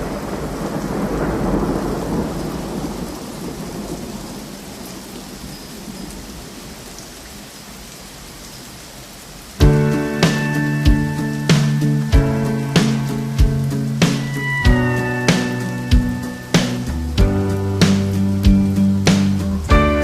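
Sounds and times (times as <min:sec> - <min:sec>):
low rumble of thunder: 0:00.0 - 0:06.6
steady rain: 0:00.0 - 0:20.0.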